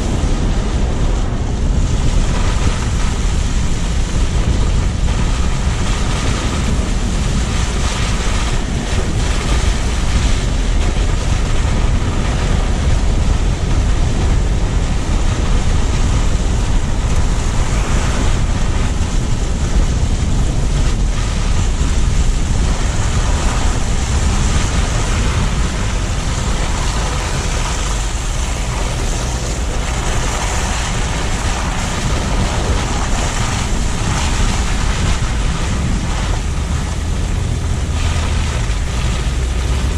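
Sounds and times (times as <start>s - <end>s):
tyre and road noise: 0.0s - 39.9s
wind buffeting microphone: 0.0s - 39.9s.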